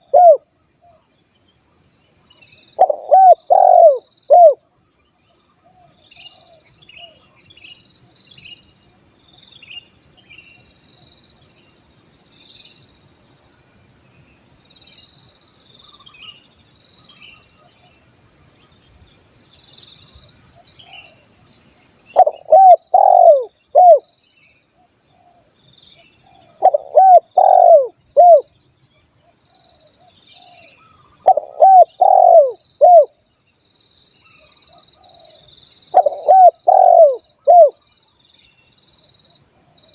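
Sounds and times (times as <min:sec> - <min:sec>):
dove cooing: 0:00.0 - 0:00.4, 0:02.8 - 0:04.6, 0:22.2 - 0:24.0, 0:26.4 - 0:28.5, 0:30.4 - 0:33.1, 0:35.0 - 0:37.8
high insect trill: 0:00.0 - 0:39.9
small birds chirping: 0:02.2 - 0:11.3, 0:22.1 - 0:33.2, 0:34.1 - 0:39.0.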